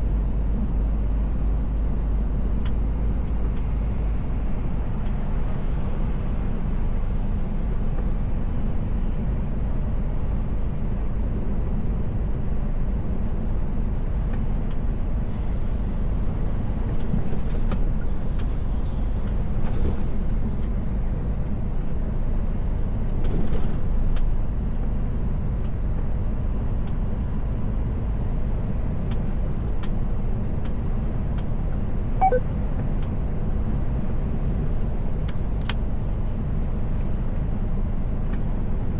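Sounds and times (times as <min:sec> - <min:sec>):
road noise: 0:00.0 - 0:38.9
truck engine rumble: 0:00.0 - 0:38.9
short high chirp: 0:32.2 - 0:32.4.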